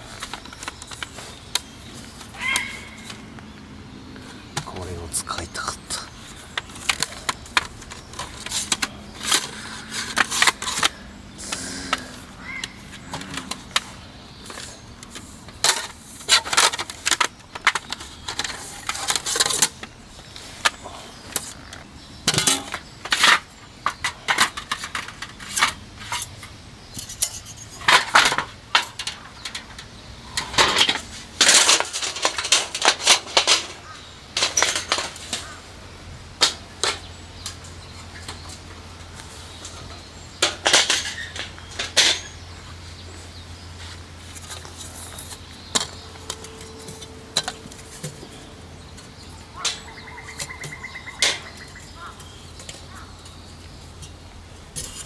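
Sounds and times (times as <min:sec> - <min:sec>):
small hard objects clattering: 0:04.6 - 0:35.7, 0:36.4 - 0:55.0.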